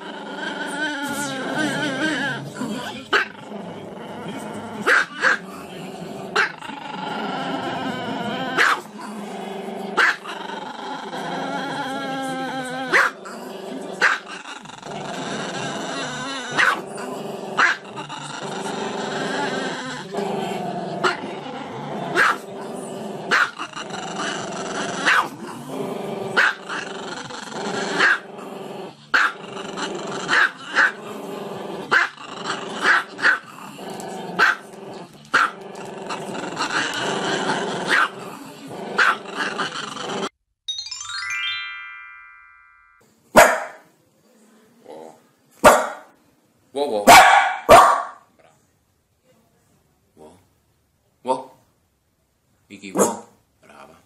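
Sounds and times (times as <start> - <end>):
dog barking sharply: 43.4 - 43.8, 45.6 - 46.1, 47.1 - 48.2, 53.0 - 53.3.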